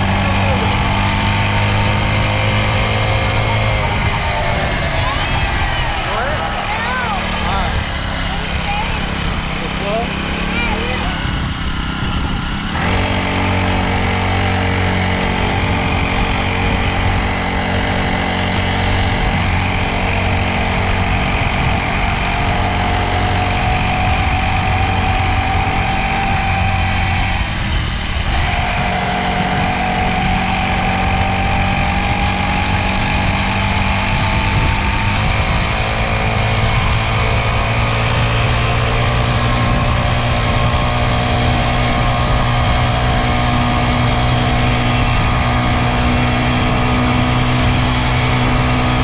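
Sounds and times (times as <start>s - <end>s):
dirt bike engine running: 0.0s - 49.0s.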